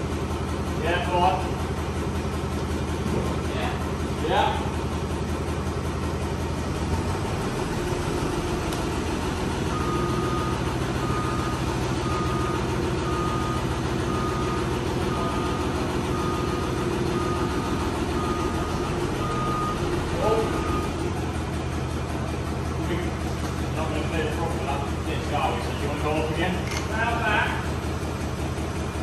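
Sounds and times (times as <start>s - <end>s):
vehicle engine running: 0.0s - 29.0s
reversing alarm beeping: 9.1s - 21.0s.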